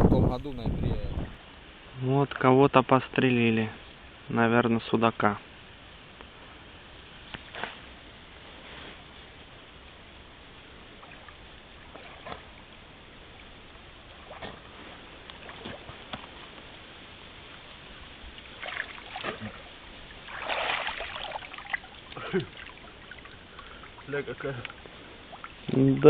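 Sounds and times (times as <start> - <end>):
water splashing and sloshing: 10.4 - 26.0.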